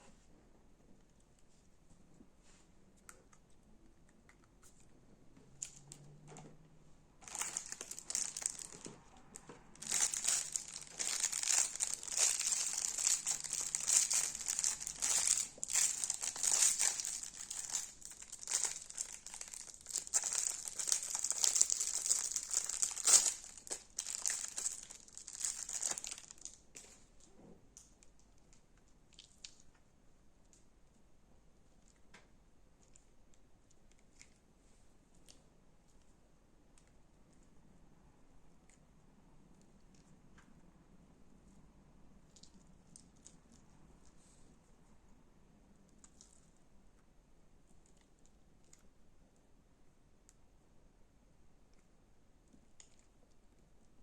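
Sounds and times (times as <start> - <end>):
crunchy slime crackling and popping: 7.2 - 27.0.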